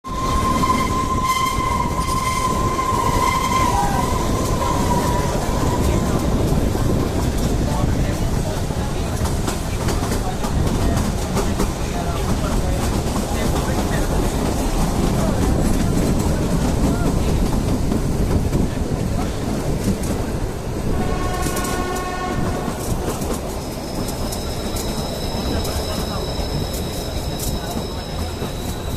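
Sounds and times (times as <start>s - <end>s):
train rumbling: 0.0s - 28.9s
train horn: 0.1s - 6.1s, 20.9s - 22.9s.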